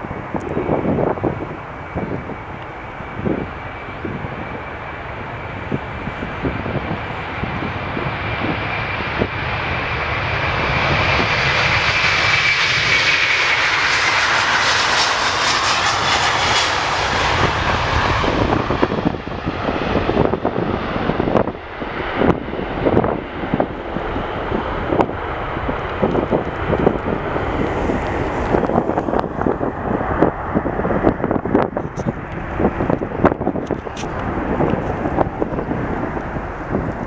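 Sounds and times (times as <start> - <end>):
jet engines passing by: 0.0 - 37.0
wind buffeting microphone: 0.0 - 37.0.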